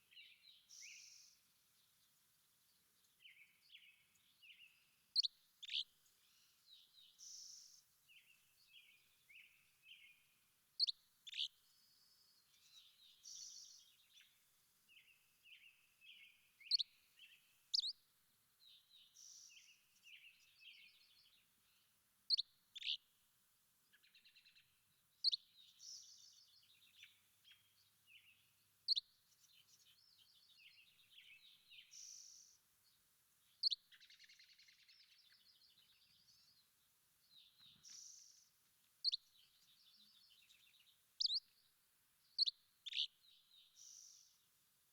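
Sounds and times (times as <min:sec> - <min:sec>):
birds warbling and twittering: 0:42.4 - 0:44.3.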